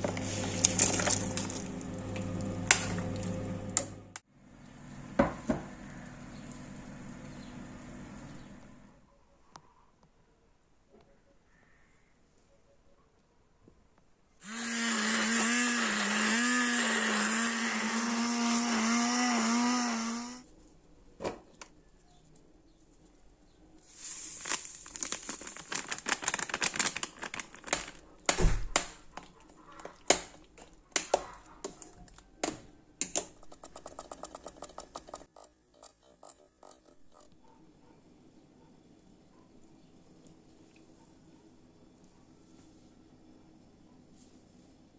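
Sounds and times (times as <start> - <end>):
blender motor running: 14.4 - 20.4
sharp clicks and knocks: 30.1 - 37.3.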